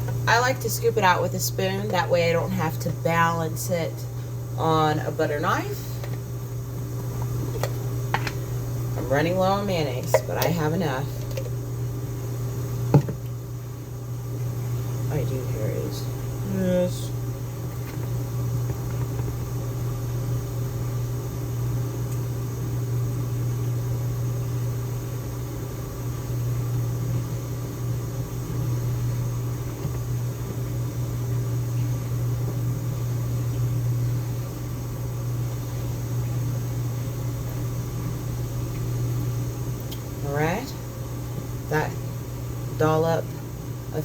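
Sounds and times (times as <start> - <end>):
appliance motor humming: 0.0 - 44.0.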